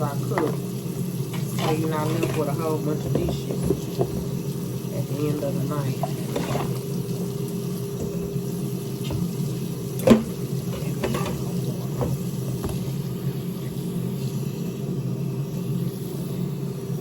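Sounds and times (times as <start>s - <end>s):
dishes clinking and clattering: 0.2s - 7.1s, 7.8s - 13.2s.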